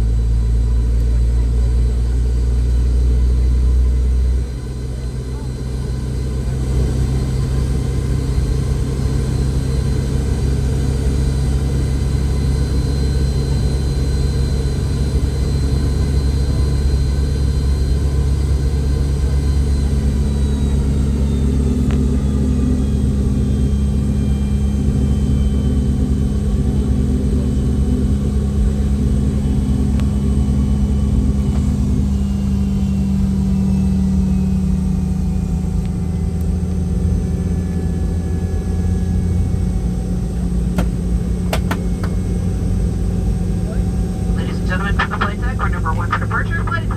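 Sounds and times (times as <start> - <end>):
jet engine rumble and whine: 0.0 - 46.9
steady lower hum: 43.7 - 46.9.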